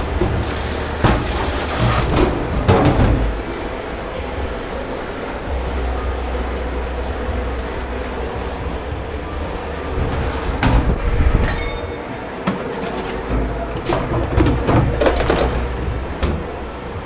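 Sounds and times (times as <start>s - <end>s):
dishware clattering: 0.0s - 3.6s, 10.6s - 16.6s
dishwashing machinery rumble: 0.0s - 17.0s.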